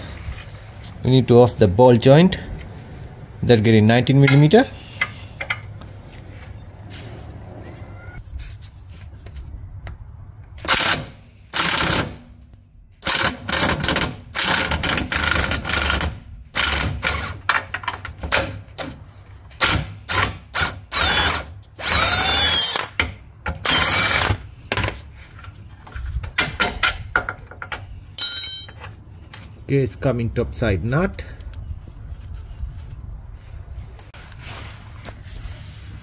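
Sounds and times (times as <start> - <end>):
impact wrench bursts: 10.6 - 12.2, 13.0 - 17.4.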